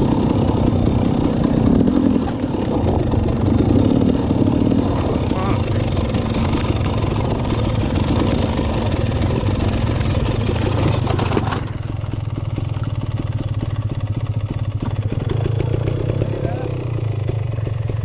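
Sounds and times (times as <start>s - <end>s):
two-stroke dirt bike engine: 0.0s - 18.0s.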